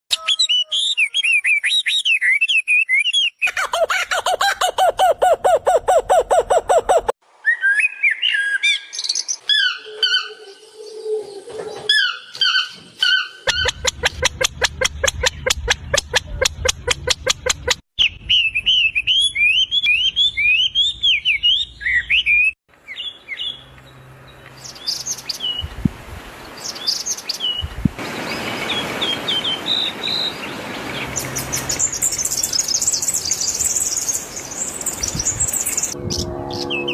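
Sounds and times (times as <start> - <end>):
bulbuls chirping: 3.4 - 7.2, 12.0 - 36.9.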